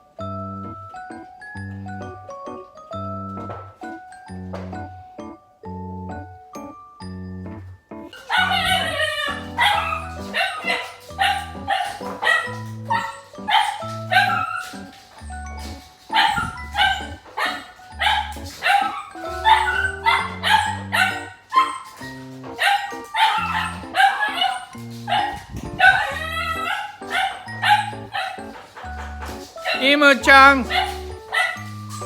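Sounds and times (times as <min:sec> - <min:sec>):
background music: 0:00.0 - 0:32.0
puppy barking: 0:08.1 - 0:32.0.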